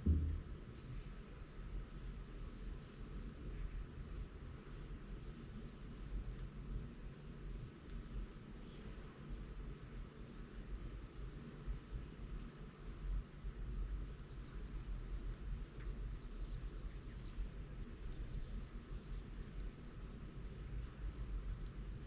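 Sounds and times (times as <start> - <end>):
bonfire burning rumble: 0.0 - 22.0.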